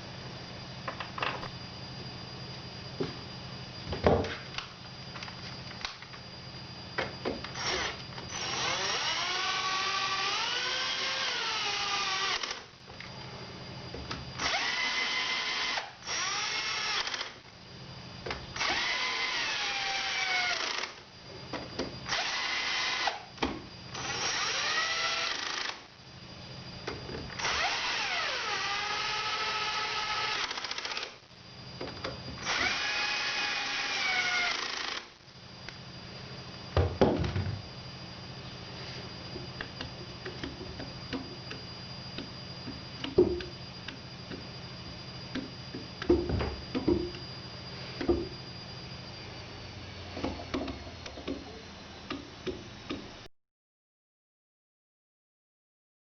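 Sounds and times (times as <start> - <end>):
drill bit squealing: 7.6 - 12.6, 27.4 - 31.0, 32.4 - 35.0
drilling machine motor hum: 7.6 - 12.7, 14.4 - 17.4, 18.6 - 21.0, 22.1 - 23.2, 23.9 - 25.8, 27.4 - 31.1, 32.4 - 35.1.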